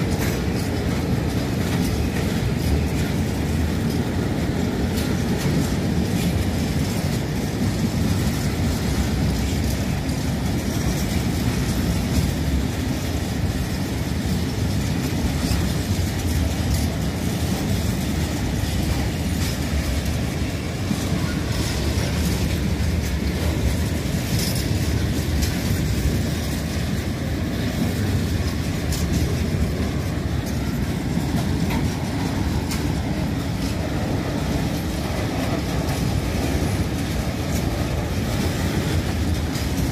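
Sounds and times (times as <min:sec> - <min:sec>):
freight train rolling past: 0:00.0 - 0:39.9
wheels clicking over rail joints: 0:00.0 - 0:39.9.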